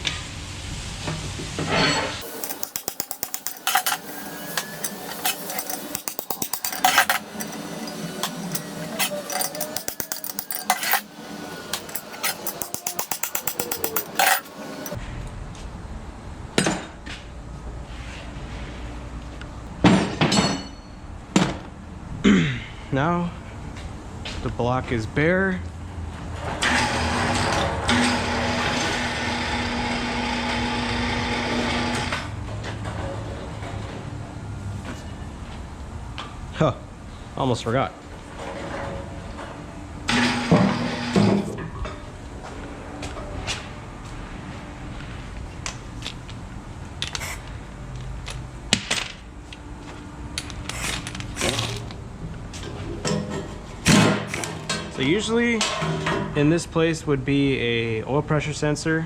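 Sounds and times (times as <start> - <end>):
metal parts clicking and clinking: 2.2 - 15.0.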